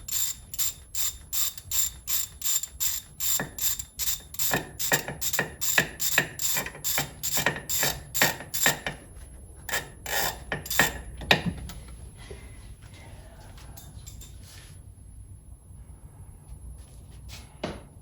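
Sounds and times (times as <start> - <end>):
socket ratchet clicking: 0.0 - 8.9.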